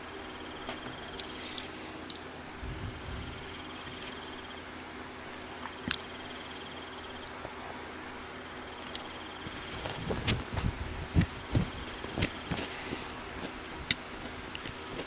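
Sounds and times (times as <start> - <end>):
steady hiss: 0.0 - 14.9
person chewing food: 5.6 - 6.2, 8.6 - 15.0.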